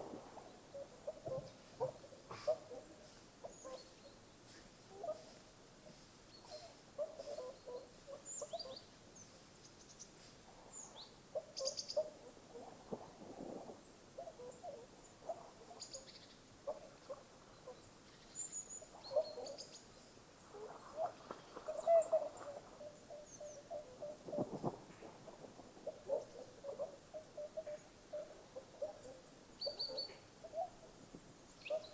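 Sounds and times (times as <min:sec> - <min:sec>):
low bird calls: 0:10.7 - 0:30.9.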